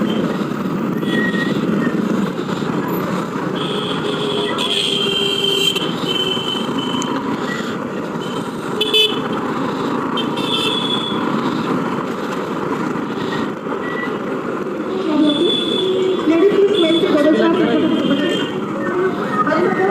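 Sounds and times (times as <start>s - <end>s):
motorcycle engine and road noise: 0.0s - 19.9s
vehicle horns honking: 3.5s - 7.2s, 8.2s - 9.4s, 10.2s - 11.3s, 14.9s - 18.7s.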